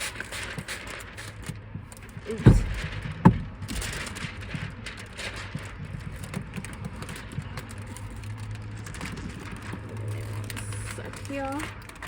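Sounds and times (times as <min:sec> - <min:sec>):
light taps and rustling of film: 0:00.0 - 0:12.0
sharp knock: 0:02.5 - 0:03.4.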